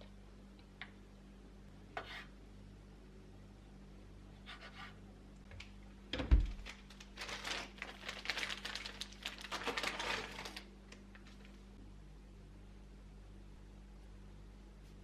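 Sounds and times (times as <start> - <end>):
rapid crinkling and clicking: 6.5 - 11.6.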